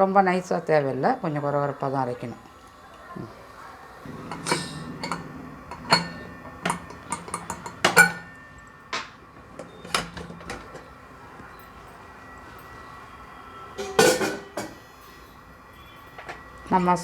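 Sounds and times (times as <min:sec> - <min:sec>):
metal and glassware clinking: 0:04.1 - 0:10.9, 0:13.8 - 0:14.8.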